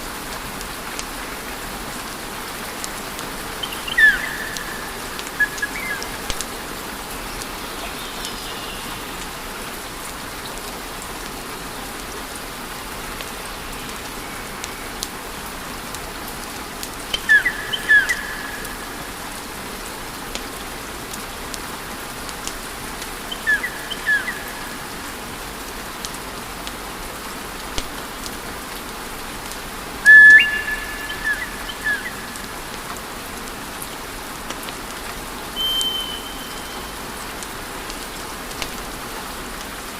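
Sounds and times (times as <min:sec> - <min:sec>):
high whistling chirps: 0:03.6 - 0:06.1, 0:17.2 - 0:18.8, 0:30.1 - 0:32.6, 0:35.6 - 0:37.1.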